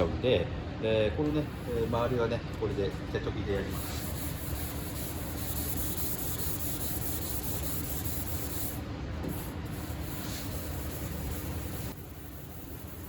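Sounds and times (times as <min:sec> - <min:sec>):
sandpaper scrubbing on metal panel: 0:03.6 - 0:13.0.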